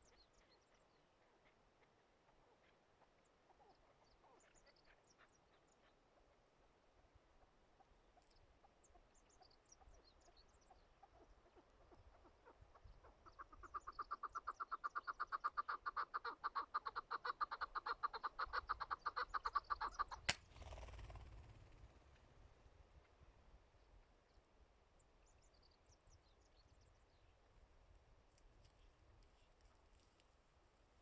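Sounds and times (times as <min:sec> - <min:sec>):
partridge clucking calls: 0:07.4 - 0:21.0.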